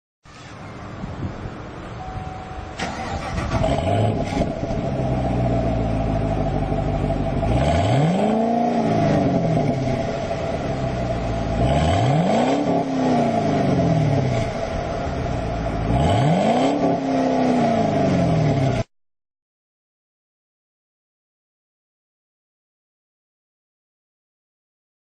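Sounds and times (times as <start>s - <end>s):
car engine idling and revving: 0.3s - 18.9s.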